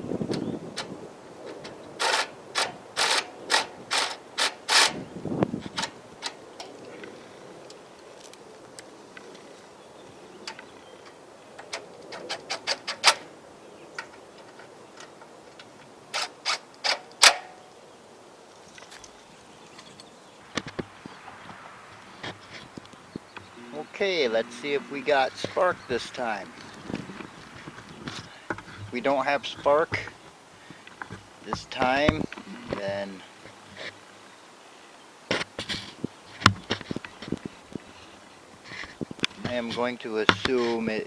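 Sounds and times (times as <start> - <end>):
sharp clicks and knocks: 0.3 - 5.0, 5.6 - 7.0, 10.4 - 13.3, 14.0 - 17.6, 20.5 - 33.1, 38.8 - 40.8.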